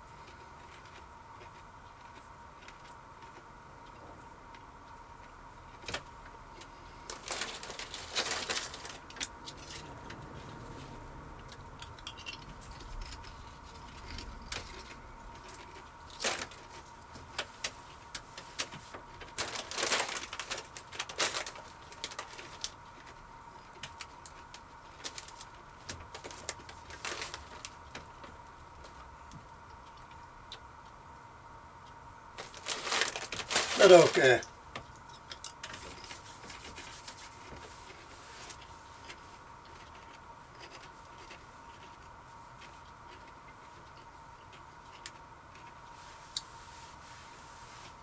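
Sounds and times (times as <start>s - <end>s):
crisps being crunched: 6.6s - 10.1s, 11.5s - 23.2s, 23.8s - 29.0s, 32.4s - 34.5s.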